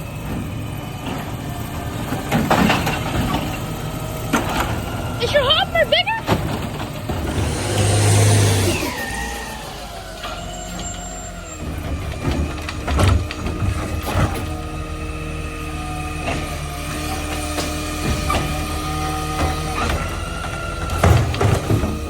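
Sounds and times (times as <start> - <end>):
garbage truck engine drone: 0.0 - 22.0
packer whine sliding down: 7.1 - 14.8.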